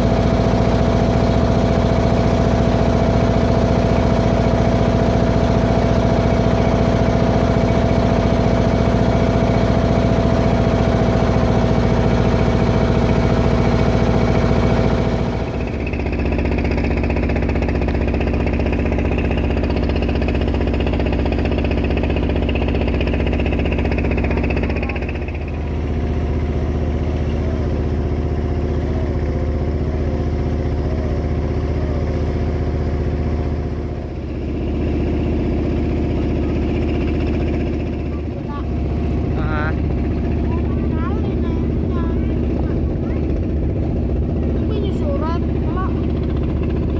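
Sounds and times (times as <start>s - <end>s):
boat diesel engine running: 0.0s - 46.9s.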